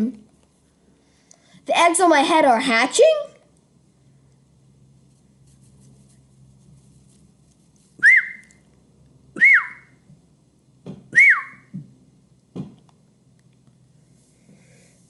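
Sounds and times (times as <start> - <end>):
whistled peeps: 8.0 - 8.6, 9.4 - 10.0, 11.1 - 11.7
soft knocks: 11.7 - 12.8.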